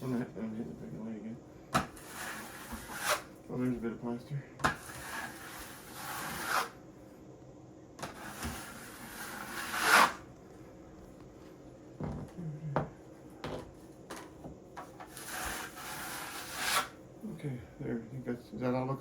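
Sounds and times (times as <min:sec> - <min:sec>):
trowel scraping wet plaster: 0:01.8 - 0:03.3, 0:04.7 - 0:06.7, 0:08.0 - 0:10.2, 0:15.1 - 0:16.9.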